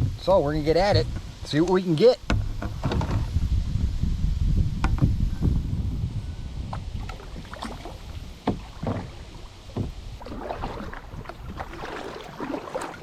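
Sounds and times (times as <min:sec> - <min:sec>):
paddle knocks: 0:02.2 - 0:03.3, 0:06.7 - 0:13.0
paddle splashing in water: 0:06.8 - 0:13.0.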